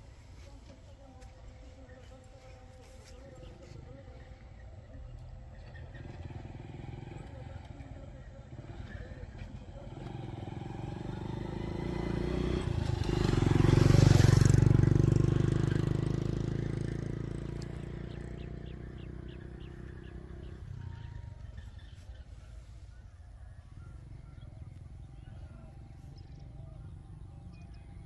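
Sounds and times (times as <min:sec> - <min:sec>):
vehicle engine passing: 0:03.2 - 0:23.0.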